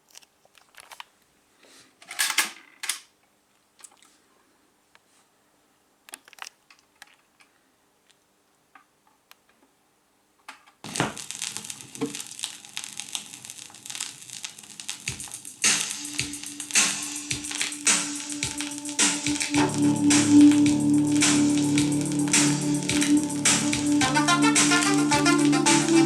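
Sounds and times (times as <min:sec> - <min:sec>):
record surface crackle and pops: 0:10.8 - 0:26.0
music: 0:15.1 - 0:26.0.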